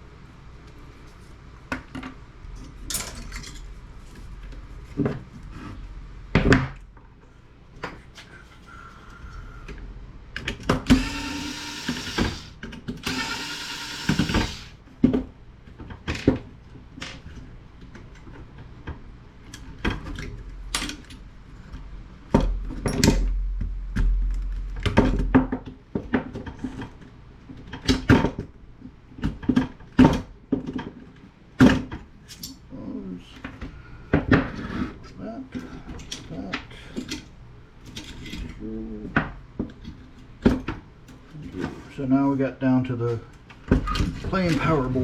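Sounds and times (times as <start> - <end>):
power tool bursts: 10.8 - 14.8.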